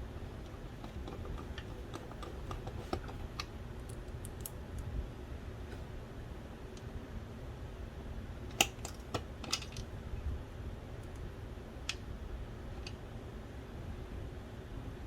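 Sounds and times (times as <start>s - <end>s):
low steady hum: 0.0s - 15.0s
small parts clicking and tapping: 0.4s - 4.9s, 8.5s - 9.9s.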